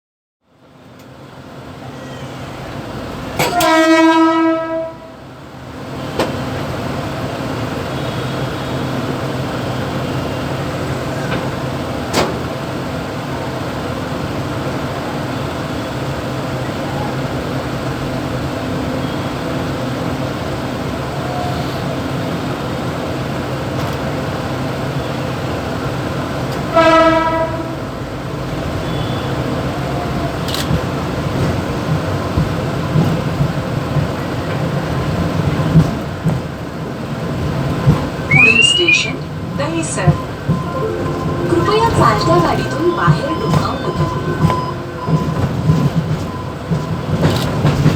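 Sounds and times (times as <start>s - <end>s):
electric train rumbling: 0.6s - 47.9s
train horn blast: 3.4s - 5.2s, 26.7s - 28.0s.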